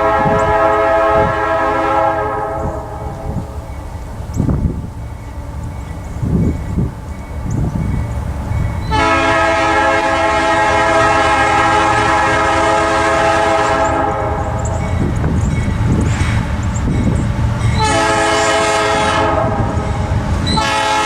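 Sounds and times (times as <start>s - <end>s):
locomotive air horn blast: 0.0s - 3.4s, 8.9s - 14.7s, 17.8s - 21.0s
low rumble of train: 0.0s - 21.0s.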